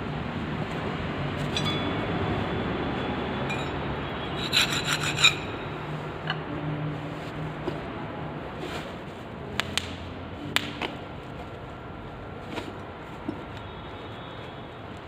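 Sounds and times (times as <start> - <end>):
rubbing and scraping on wheel: 3.5 - 6.2.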